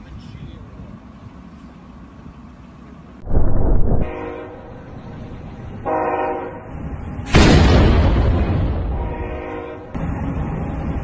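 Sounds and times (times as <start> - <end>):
road rumble: 0.0 - 11.0
deep multi-tone horn blasts: 3.9 - 5.0, 5.8 - 6.8, 8.8 - 10.0.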